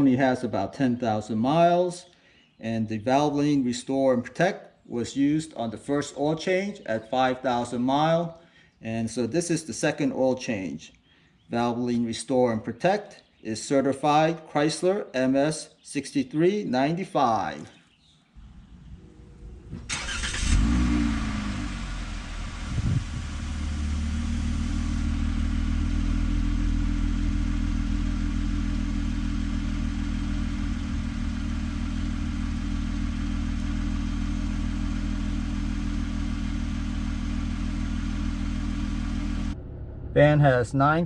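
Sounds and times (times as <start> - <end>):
engine starting and idling: 18.4 - 25.2, 39.4 - 41.0.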